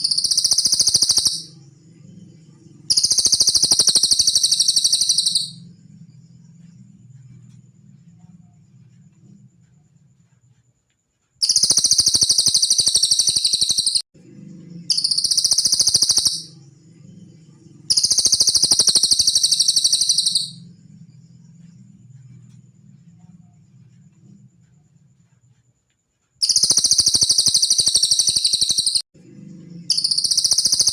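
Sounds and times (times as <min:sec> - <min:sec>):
bird high-pitched trills: 0:00.0 - 0:01.6, 0:02.8 - 0:05.7, 0:11.4 - 0:14.0, 0:14.8 - 0:16.6, 0:17.8 - 0:20.7, 0:26.4 - 0:29.0, 0:29.8 - 0:30.9
faint low hum: 0:00.0 - 0:11.4, 0:14.2 - 0:18.6, 0:19.2 - 0:26.4, 0:29.2 - 0:30.8.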